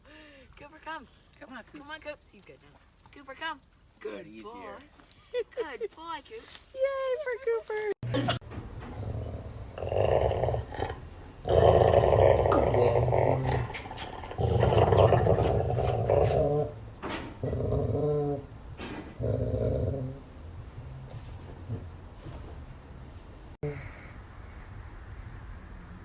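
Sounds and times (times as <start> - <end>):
dog growling: 8.9 - 16.8, 17.4 - 18.5, 19.2 - 20.3.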